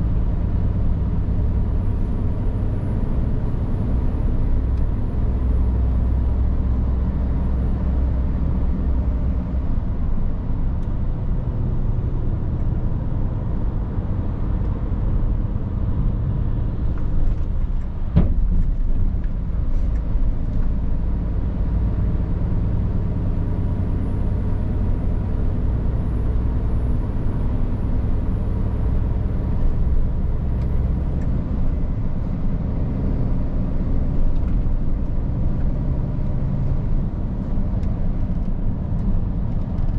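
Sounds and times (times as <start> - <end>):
road noise: 0.0 - 39.9.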